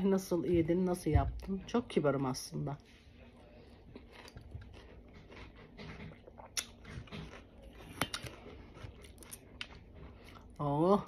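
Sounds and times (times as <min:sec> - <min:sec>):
chewing watermelon: 0:02.8 - 0:11.0.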